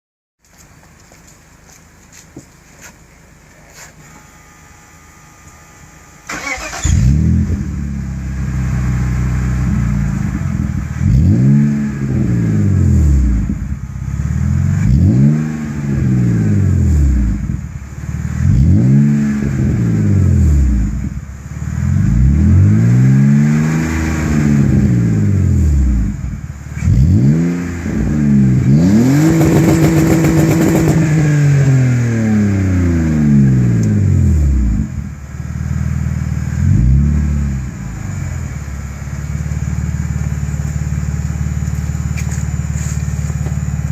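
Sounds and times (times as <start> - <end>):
car engine revving: 6.3 - 43.9.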